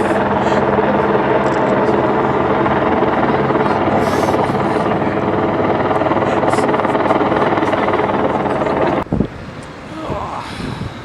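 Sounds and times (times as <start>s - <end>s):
helicopter rotor and engine: 0.0s - 10.6s.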